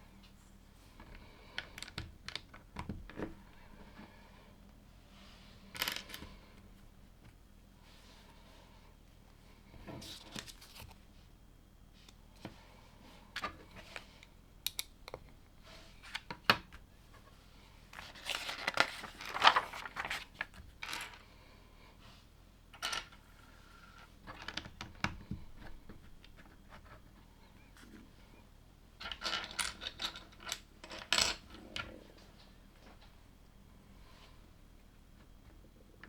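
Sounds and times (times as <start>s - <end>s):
plastic rustling and crinkling: 18.0s - 20.7s.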